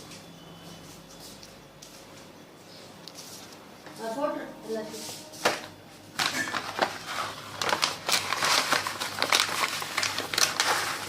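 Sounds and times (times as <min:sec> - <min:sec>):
crinkling handling noise: 0:05.2 - 0:11.0.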